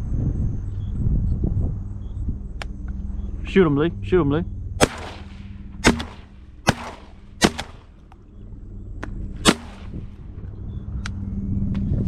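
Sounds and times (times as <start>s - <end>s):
faint gunshot reports: 4.8s - 7.9s, 9.5s - 10.1s
shotgun blasts echoing: 4.8s - 8.0s, 9.4s - 10.1s.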